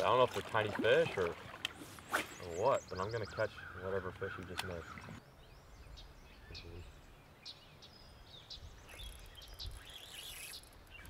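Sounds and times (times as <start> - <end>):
short bird chirps: 5.8 - 11.0.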